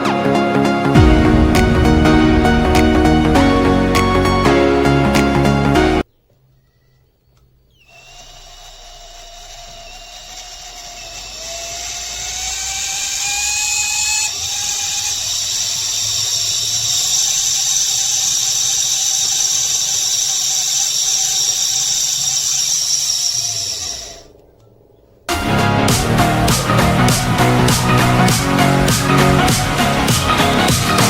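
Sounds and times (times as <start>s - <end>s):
high-speed motor whining: 7.8s - 31.0s.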